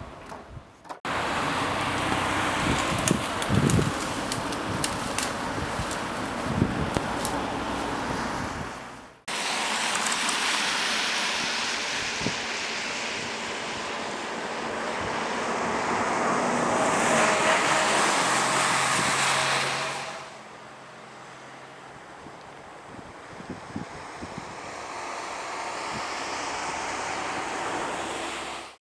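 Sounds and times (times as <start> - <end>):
strong wind rushing: 1.2 - 9.0.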